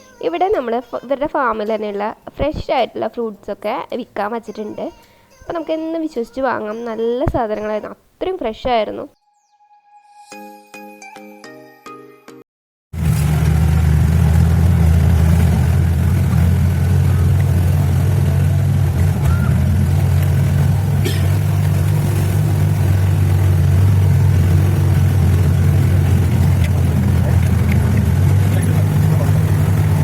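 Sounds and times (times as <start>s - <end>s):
road noise: 13.0s - 30.0s
vehicle engine drone: 13.0s - 30.0s.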